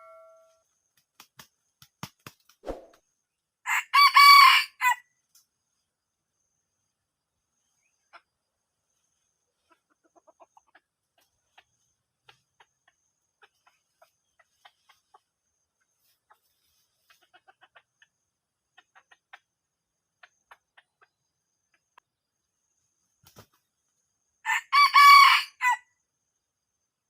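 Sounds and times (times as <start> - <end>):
junglefowl clucking: 9.6 - 15.3, 16.2 - 19.5.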